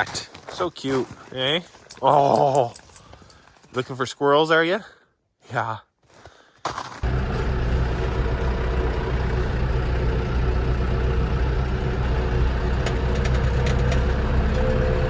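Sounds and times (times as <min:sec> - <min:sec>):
tractor diesel engine running: 0:07.0 - 0:15.0.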